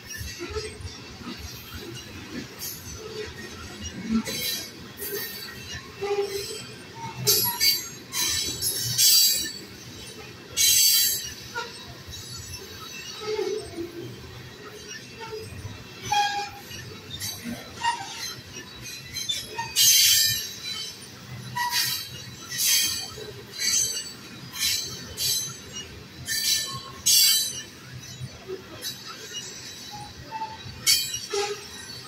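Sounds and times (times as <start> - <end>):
freight train rumbling: 0.0 - 32.0
wheel screeches: 0.1 - 32.0.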